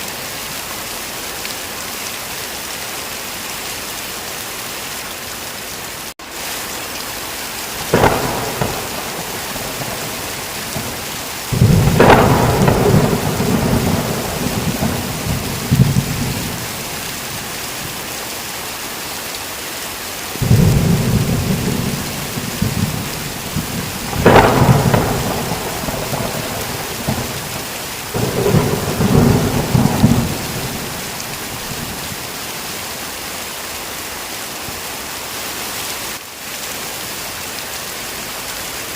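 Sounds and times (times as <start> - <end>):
heavy rain hissing: 0.0 - 38.9
thunder cracks and rumbles: 7.8 - 17.3, 20.4 - 32.2.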